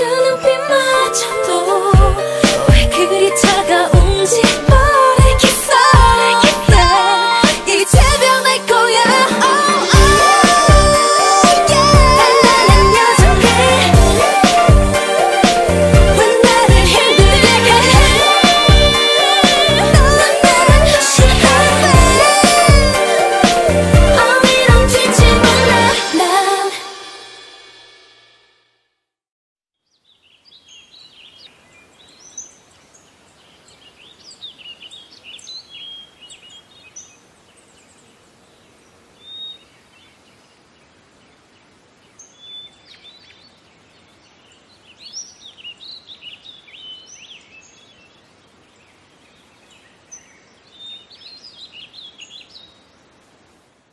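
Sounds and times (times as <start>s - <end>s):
small birds chirping and twittering: 29.8s - 53.7s
faint steady hiss: 29.8s - 53.9s.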